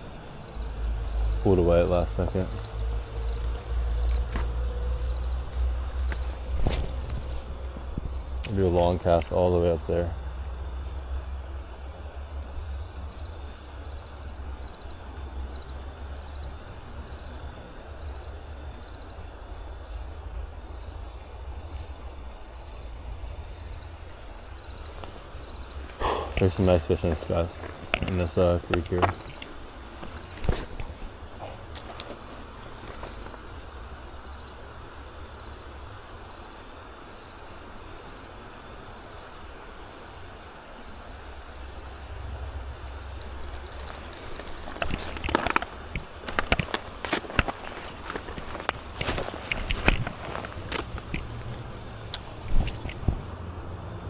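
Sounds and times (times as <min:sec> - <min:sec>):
wind rumble on microphone: 0:02.4 - 0:09.2, 0:42.2 - 0:54.0
creek flowing: 0:21.4 - 0:38.8, 0:39.8 - 0:54.0.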